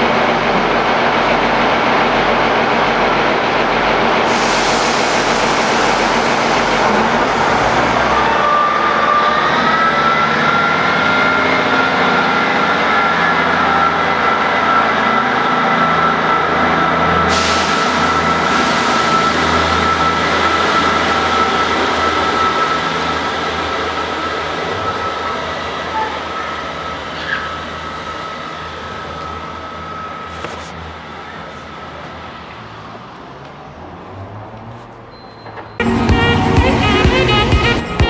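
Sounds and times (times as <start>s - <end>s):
passenger train running: 0.0s - 38.0s
high whine: 35.8s - 38.0s.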